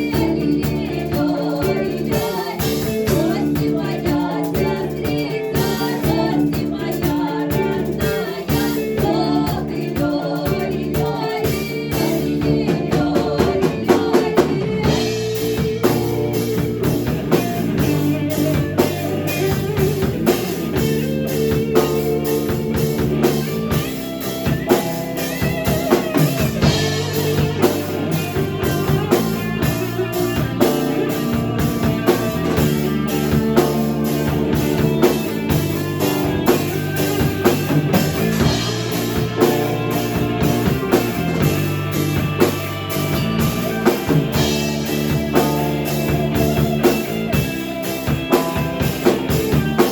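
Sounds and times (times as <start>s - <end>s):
person singing: 0.0s - 20.4s
folk-rock band playing: 0.0s - 49.9s.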